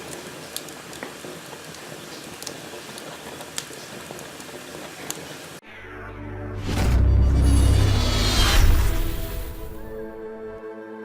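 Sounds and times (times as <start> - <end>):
wood fire crackling: 0.0 - 5.6.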